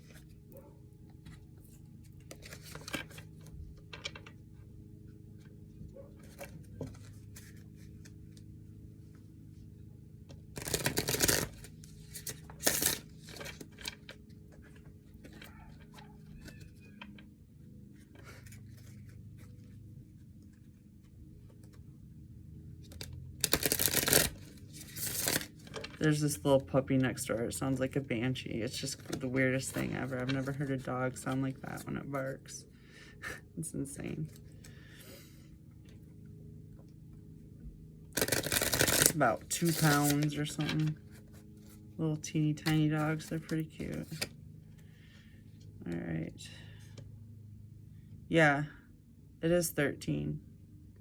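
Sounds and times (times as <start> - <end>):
cards being shuffled: 2.2 - 3.6, 6.2 - 8.5, 10.6 - 17.0, 22.9 - 26.2, 28.7 - 31.9, 38.2 - 41.8, 42.6 - 44.4.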